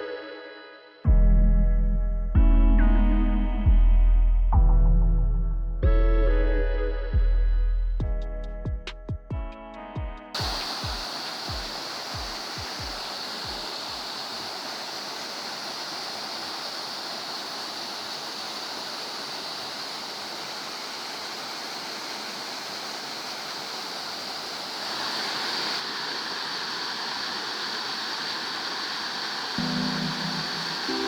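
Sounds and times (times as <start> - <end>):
small waterfall splashing: 10.4 - 31.0.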